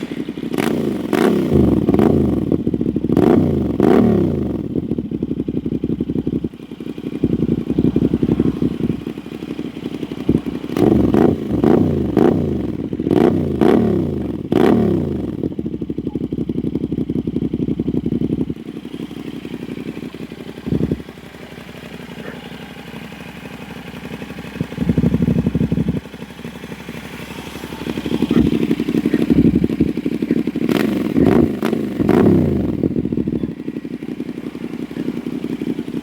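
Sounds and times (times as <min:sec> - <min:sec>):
motorcycle engine idling and revving: 0:00.0 - 0:36.0.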